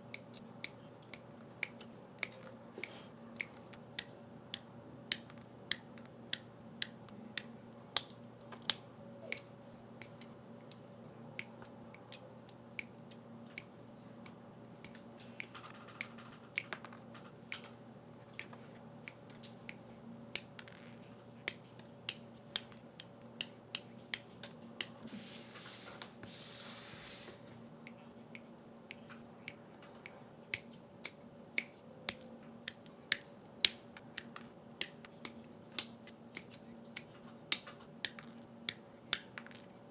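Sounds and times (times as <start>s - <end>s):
rustling: 24.9s - 27.7s.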